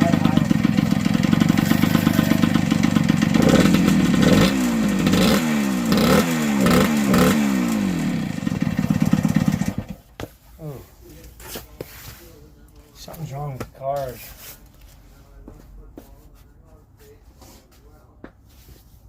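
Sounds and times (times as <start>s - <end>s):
two-stroke engine revving: 0.0s - 10.0s
man talking: 10.6s - 14.3s.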